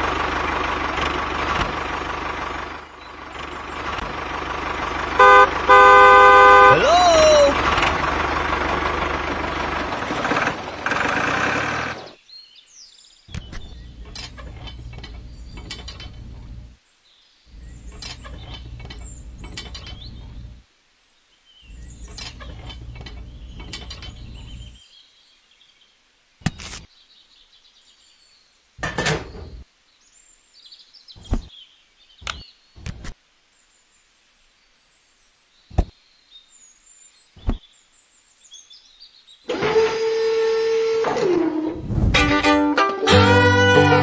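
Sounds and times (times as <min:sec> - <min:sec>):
loud noise: 0:05.2 - 0:08.2.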